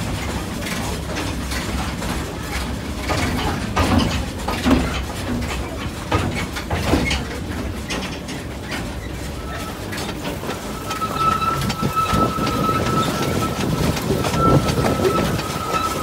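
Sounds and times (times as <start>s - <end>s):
train carriage rumbling and rattling: 0.0s - 16.0s
high-pitched squeal: 10.5s - 16.0s.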